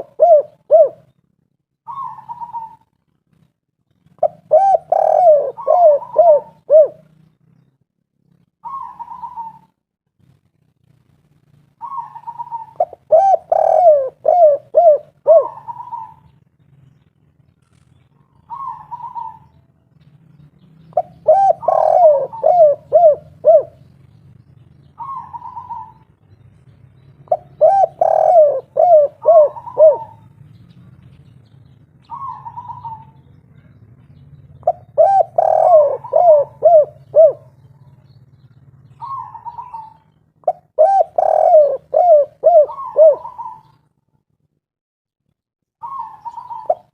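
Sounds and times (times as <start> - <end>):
dove cooing: 0.0 - 1.2, 1.8 - 2.9, 4.1 - 7.2, 8.6 - 9.8, 11.8 - 16.4, 18.3 - 19.6, 20.9 - 23.9, 24.9 - 26.1, 27.2 - 30.4, 32.0 - 43.8, 45.8 - 46.9.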